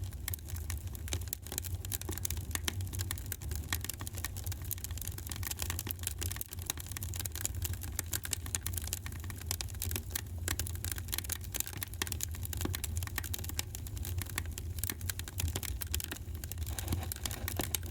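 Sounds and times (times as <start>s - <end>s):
low rumble of flames: 0.0s - 17.9s
wood fire crackling: 0.0s - 17.9s.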